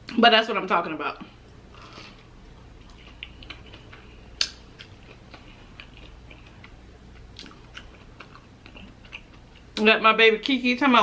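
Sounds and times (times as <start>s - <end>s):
person chewing: 1.7s - 9.8s.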